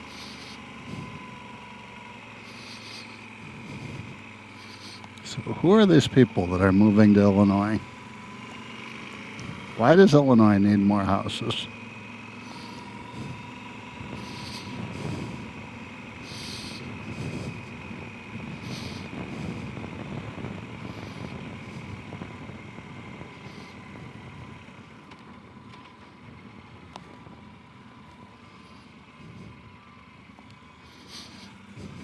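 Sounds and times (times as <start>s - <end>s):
short hissy rushes: 0.0s - 5.2s, 11.8s - 22.0s, 30.7s - 32.0s
faint steady whine: 0.0s - 32.0s
vehicle road noise rumbling: 0.0s - 32.0s.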